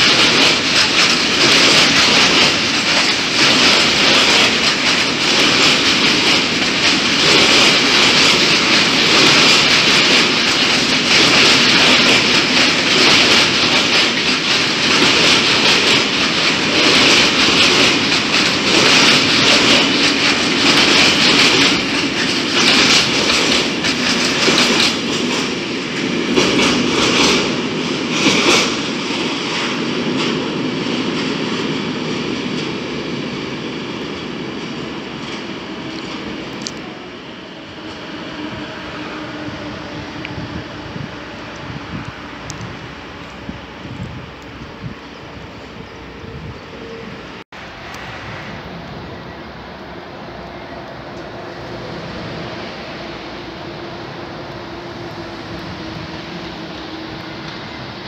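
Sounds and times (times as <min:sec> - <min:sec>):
steel wheels clacking over rail joints: 0:00.0 - 0:37.0
freight train rolling past: 0:00.0 - 0:58.0.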